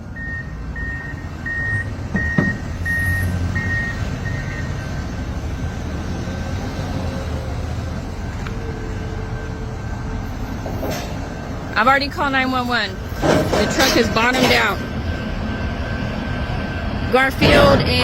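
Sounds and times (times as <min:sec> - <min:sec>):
diesel machinery rumbling: 0:00.0 - 0:18.0
backup alarm beeping: 0:00.1 - 0:05.0.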